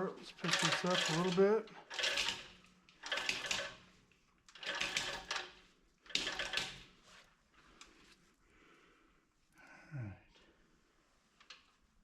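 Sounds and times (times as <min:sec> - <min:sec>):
hoist chain clattering: 0:00.4 - 0:03.8.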